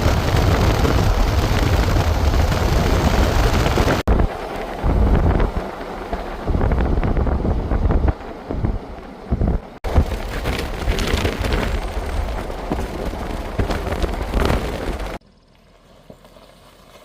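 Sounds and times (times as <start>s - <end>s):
wind buffeting microphone: 0.0s - 15.2s.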